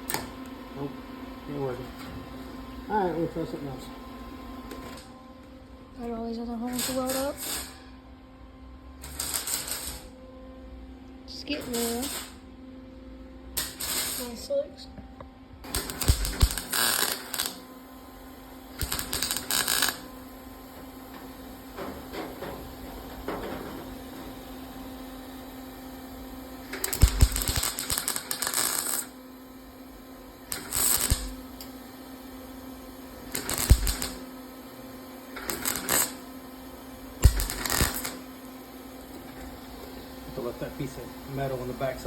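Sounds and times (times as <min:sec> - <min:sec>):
steady low hum: 0:00.0 - 0:42.0
wire-feed welder crackling: 0:06.7 - 0:07.8, 0:09.0 - 0:10.1, 0:11.6 - 0:12.4, 0:13.6 - 0:14.4, 0:15.6 - 0:17.7, 0:18.7 - 0:20.2, 0:26.6 - 0:29.2, 0:30.4 - 0:31.8, 0:33.2 - 0:34.4, 0:35.3 - 0:36.4, 0:37.2 - 0:38.4.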